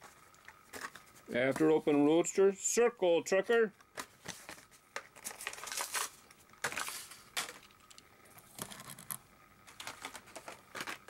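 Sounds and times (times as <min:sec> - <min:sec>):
plastic packaging crackling: 0:03.8 - 0:08.0.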